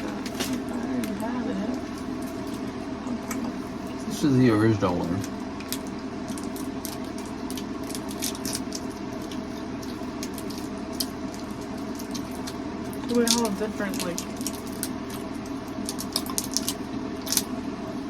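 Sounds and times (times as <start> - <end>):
room hum: 0.0 - 18.0
candy wrapper clicks and rustles: 5.2 - 17.5.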